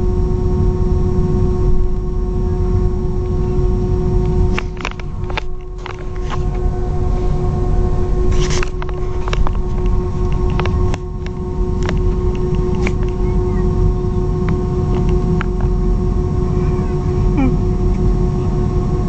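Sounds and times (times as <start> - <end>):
airplane cabin rumble: 0.0 - 19.0
mechanical hum: 0.0 - 19.0
sharp clicks and rattles: 4.2 - 7.2, 8.1 - 15.8.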